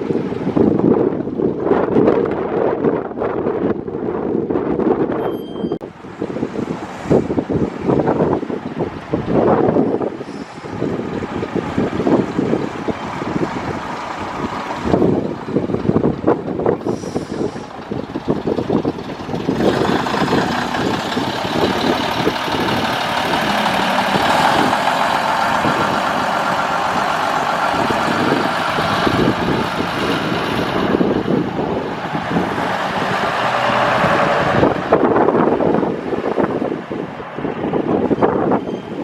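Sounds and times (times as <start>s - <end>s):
bus engine running: 0.0s - 5.0s, 5.9s - 39.0s
road noise: 0.0s - 39.0s
rattling: 17.4s - 31.3s.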